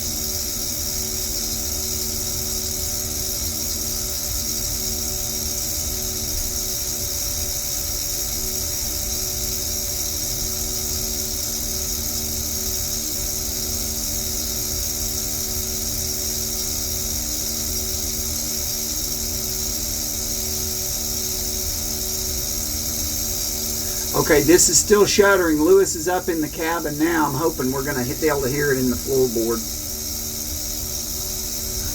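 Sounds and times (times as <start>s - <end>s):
valve shuddering: 23.2s - 30.5s
steady hum tones: 23.7s - 29.8s.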